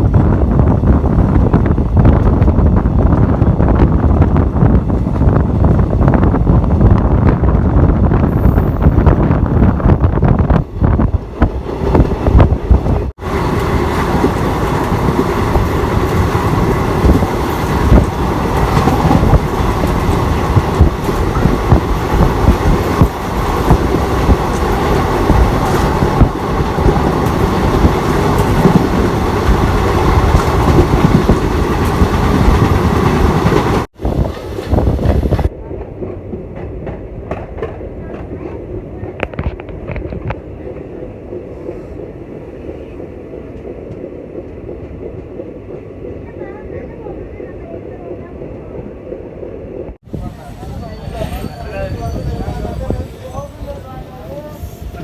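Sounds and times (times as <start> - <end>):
train rumbling: 0.0 - 55.0.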